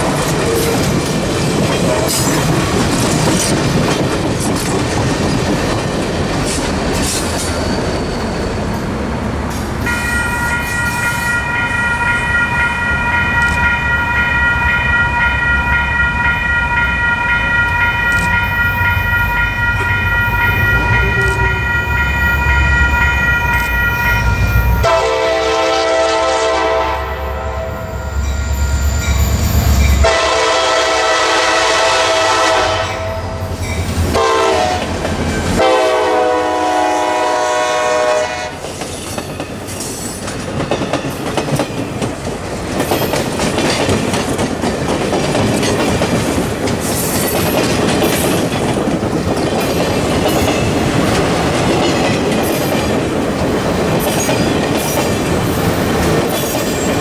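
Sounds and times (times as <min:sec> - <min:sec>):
train wheels clickety-clack: 0:00.0 - 0:11.4, 0:13.2 - 0:25.0, 0:33.5 - 0:37.2, 0:38.2 - 0:57.0
train rumbling past: 0:00.0 - 0:57.0
locomotive air horn blasts: 0:19.3 - 0:28.2, 0:30.0 - 0:33.4, 0:34.1 - 0:34.9, 0:35.6 - 0:38.6.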